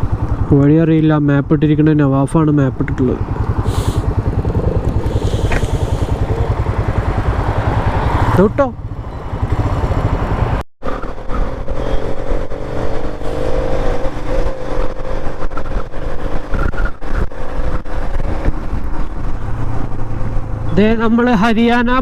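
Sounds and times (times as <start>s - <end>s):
steady whine: 0.0s - 7.6s
motorcycle engine running: 0.0s - 21.9s.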